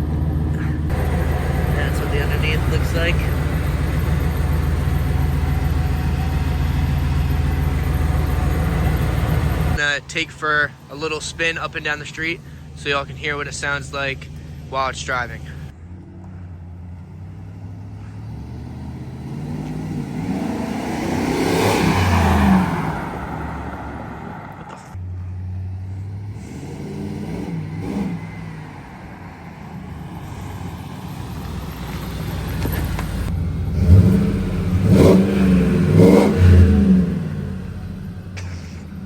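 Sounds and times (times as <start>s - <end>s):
truck engine accelerating: 0.0s - 39.0s.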